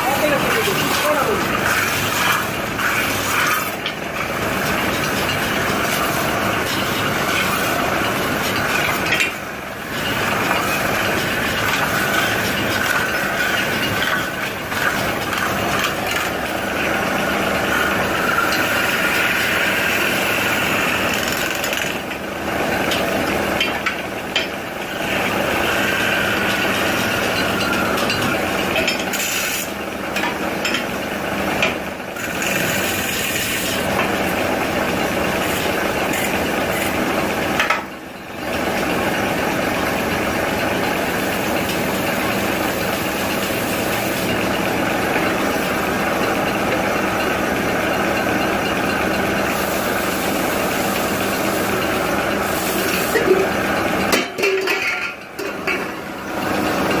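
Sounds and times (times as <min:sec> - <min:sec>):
machine running: 0:00.0 - 0:29.8.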